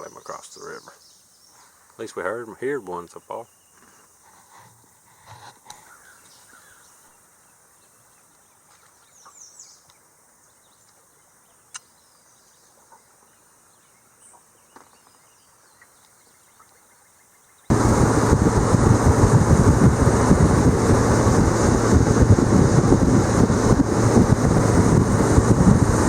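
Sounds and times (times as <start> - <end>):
songbird chirps: 0.0 - 5.0, 5.7 - 17.7.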